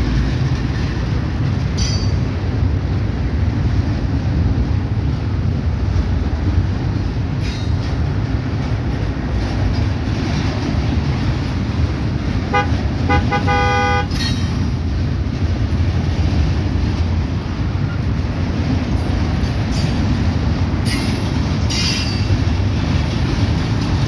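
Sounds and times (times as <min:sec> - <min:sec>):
locomotive horn blasts: 0:12.5 - 0:14.4.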